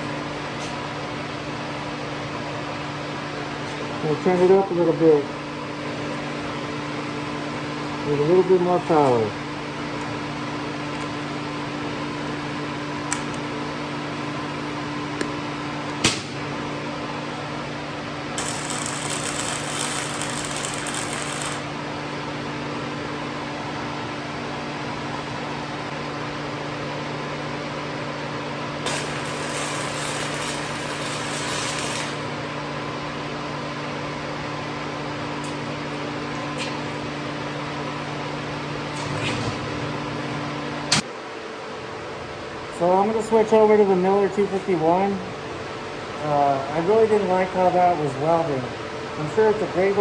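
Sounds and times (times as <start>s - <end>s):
welder humming with fan: 0.0s - 39.0s
welding arc crackle: 18.4s - 22.0s, 28.9s - 32.3s.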